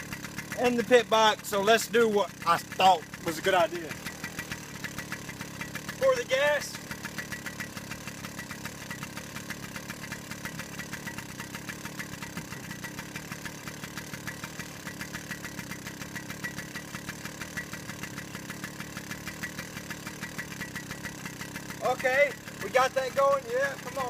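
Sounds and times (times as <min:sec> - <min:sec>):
motorbike engine idling: 0:00.0 - 0:24.0.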